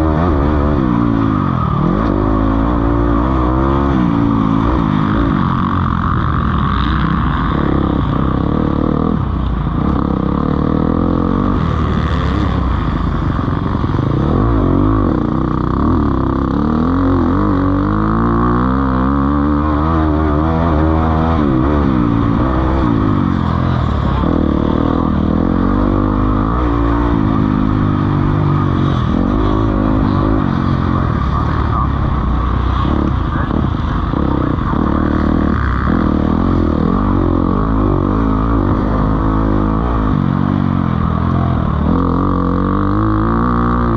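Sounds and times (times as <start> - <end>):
motocross bikes revving: 0.0 - 43.9.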